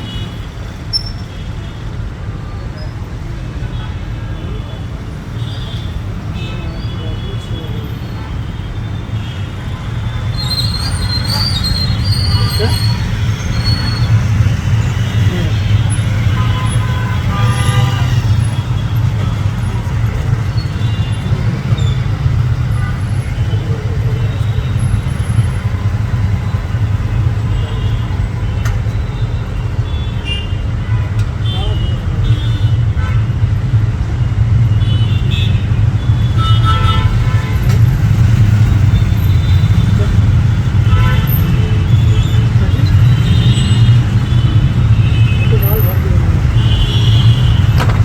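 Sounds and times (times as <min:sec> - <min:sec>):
faint voices: 0:45.3 - 0:46.7.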